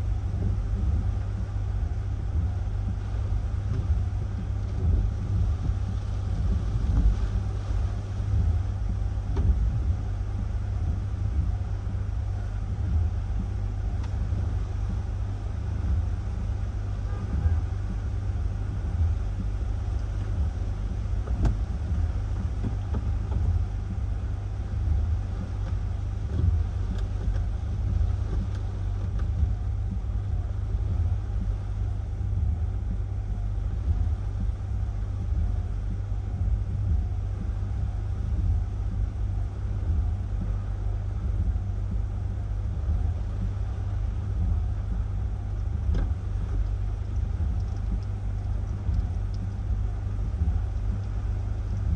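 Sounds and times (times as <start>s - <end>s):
wind buffeting microphone: 0.0s - 51.9s
faint ticks: 41.4s - 51.9s.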